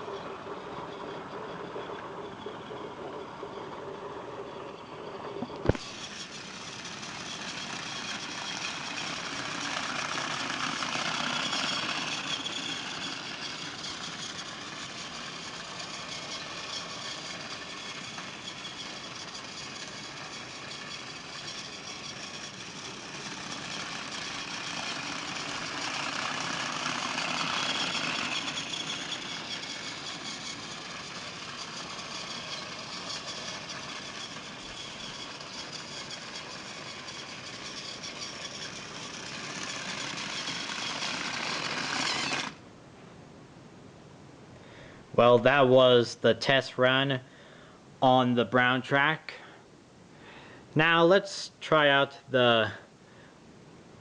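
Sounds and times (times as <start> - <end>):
toy train motor whirring: 0.0 - 42.6.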